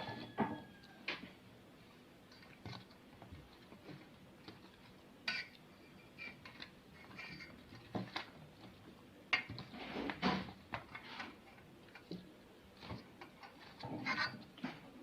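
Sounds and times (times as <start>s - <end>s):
food shifted in baking tray: 9.6s - 11.5s.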